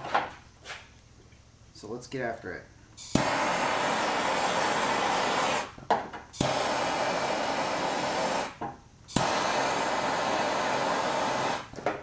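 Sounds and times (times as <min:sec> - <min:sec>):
torch burning hiss: 0:03.0 - 0:11.8
torch igniter click: 0:06.4 - 0:06.8, 0:08.4 - 0:09.8.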